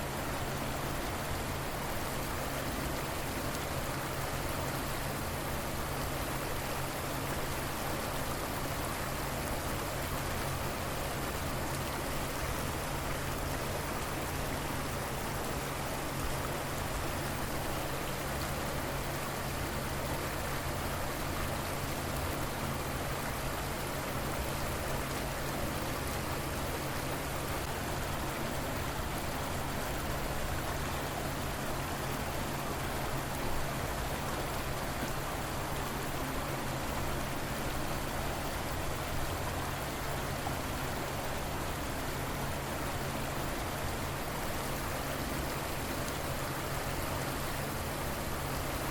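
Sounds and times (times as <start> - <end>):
river water flowing: 0.0 - 48.9.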